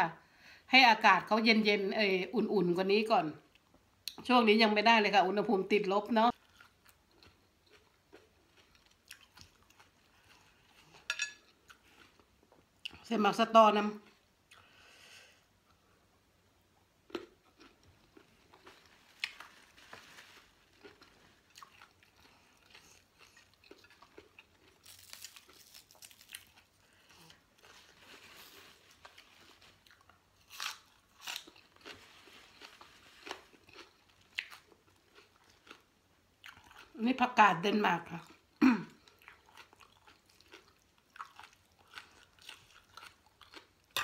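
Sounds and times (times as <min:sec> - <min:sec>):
person chewing crunchy vegetables: 0:06.3 - 0:13.0, 0:17.0 - 0:37.0, 0:38.2 - 0:44.0.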